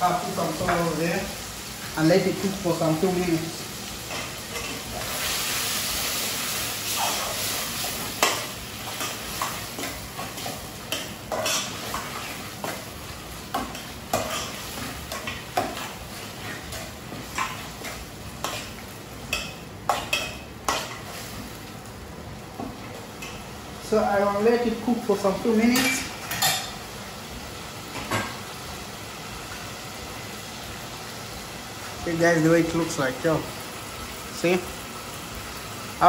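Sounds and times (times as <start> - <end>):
food sizzling in a pan: 0.0 - 36.0
spoon scraping a pan: 6.9 - 12.8, 13.5 - 21.3.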